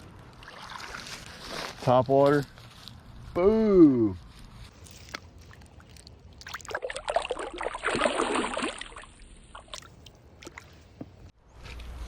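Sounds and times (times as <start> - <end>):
fish splashing in water: 5.1 - 10.7.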